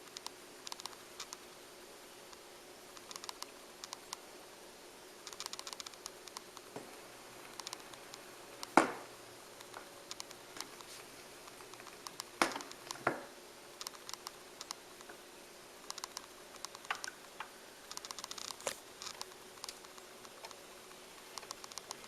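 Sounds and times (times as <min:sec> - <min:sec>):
soft mechanical clicks: 0:00.0 - 0:01.5, 0:02.3 - 0:04.3, 0:05.2 - 0:06.8, 0:07.4 - 0:08.8, 0:09.6 - 0:13.1, 0:13.8 - 0:15.2, 0:15.8 - 0:22.0
faint steady hum: 0:00.0 - 0:22.0.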